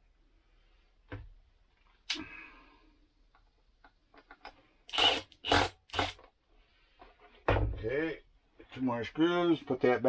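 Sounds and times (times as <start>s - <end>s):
hand tools and screws clicking: 4.2s - 6.3s.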